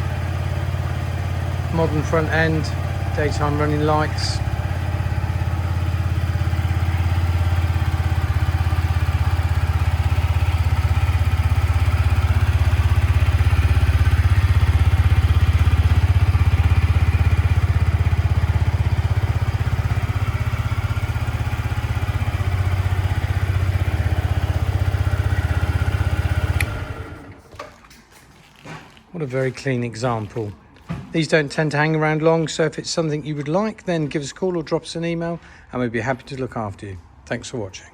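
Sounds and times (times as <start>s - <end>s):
motorcycle engine idling: 0.0s - 27.5s
click: 26.6s - 26.8s.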